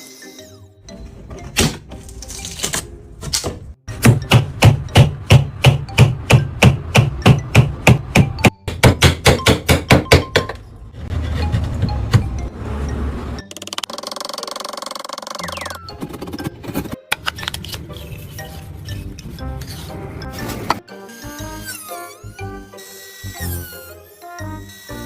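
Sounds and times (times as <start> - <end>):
hammer striking wood: 4.0 - 10.6.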